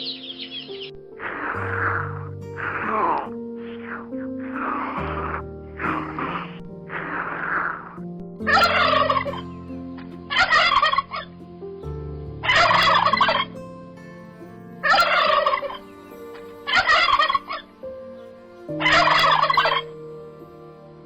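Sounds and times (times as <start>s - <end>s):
low held notes: 0.0s - 21.0s
animal calling loudly: 8.5s - 9.4s, 14.8s - 15.8s, 16.7s - 17.6s, 18.8s - 19.9s.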